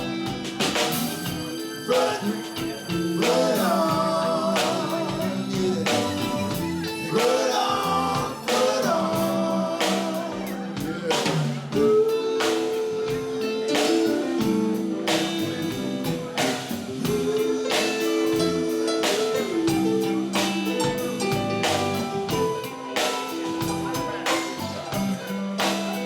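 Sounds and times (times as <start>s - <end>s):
slow soul ballad band music: 0.0s - 26.0s
slow steady drum beat: 0.0s - 26.0s
person singing yeah: 1.4s - 26.0s.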